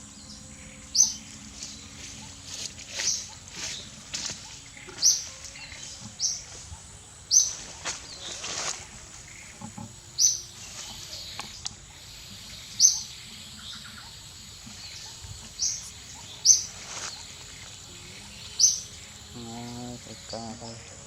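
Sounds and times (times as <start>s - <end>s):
bird chirping: 0.0s - 21.0s
outdoor background noise: 0.0s - 21.0s
faint knocks: 8.9s - 11.8s.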